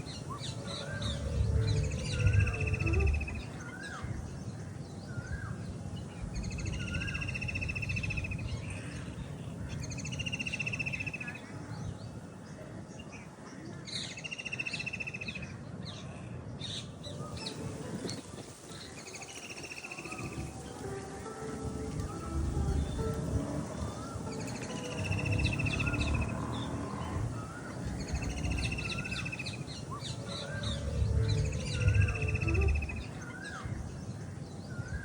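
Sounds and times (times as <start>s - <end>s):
steady low rumble: 0.0s - 9.9s, 20.2s - 35.0s
bird buzzy trilled song: 0.0s - 11.5s, 17.1s - 35.0s
bird chirps: 0.0s - 12.2s, 16.8s - 35.0s.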